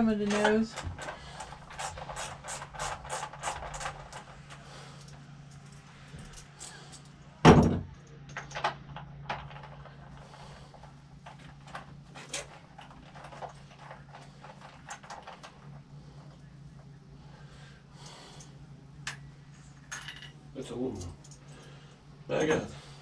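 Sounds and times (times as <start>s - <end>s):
steady low hum: 0.0s - 23.0s
loud thump: 7.4s - 7.9s
tools clinking and clicking: 19.8s - 21.6s.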